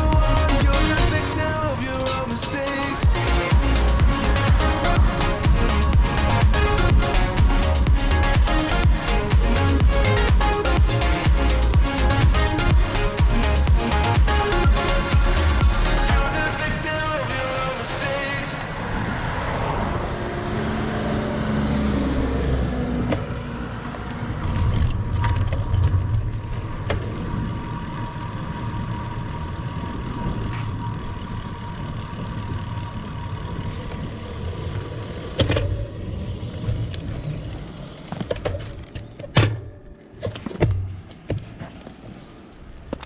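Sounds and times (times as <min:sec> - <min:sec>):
background music: 0:00.0 - 0:18.8
road noise rumble and whine: 0:00.0 - 0:43.0.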